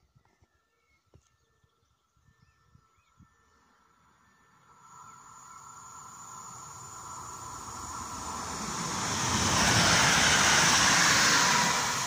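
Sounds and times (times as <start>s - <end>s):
rush of passing train: 3.9s - 12.0s
train wheels rumbling on rail: 5.3s - 12.0s.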